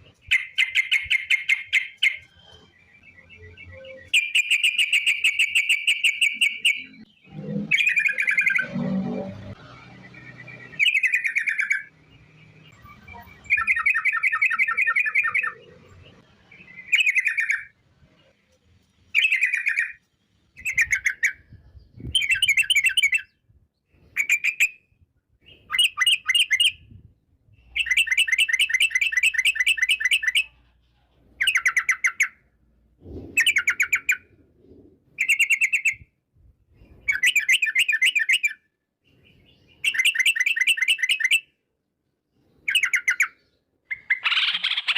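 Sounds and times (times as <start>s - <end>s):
bird singing rapid trills: 0.0s - 9.1s, 10.0s - 17.8s.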